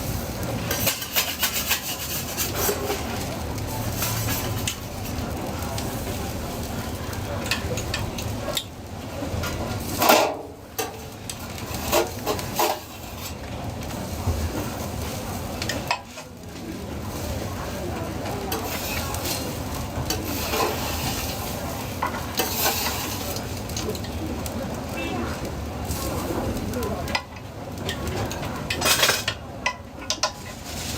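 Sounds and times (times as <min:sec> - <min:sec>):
food sizzling in a pan: 0:00.0 - 0:30.9
metal utensils scraping pan: 0:00.6 - 0:05.2, 0:09.4 - 0:13.4, 0:18.5 - 0:24.1, 0:28.0 - 0:30.9.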